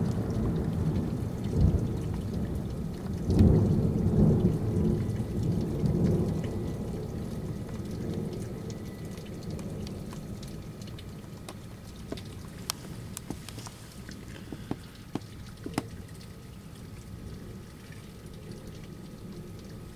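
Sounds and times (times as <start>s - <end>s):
steady rain: 0.0s - 19.9s
water drips: 0.0s - 19.9s.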